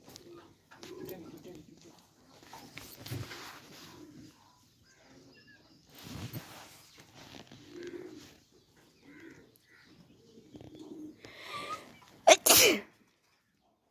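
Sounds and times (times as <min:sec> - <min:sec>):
birds cooing softly: 0:00.0 - 0:12.2
rustling: 0:02.4 - 0:04.2, 0:05.9 - 0:08.4.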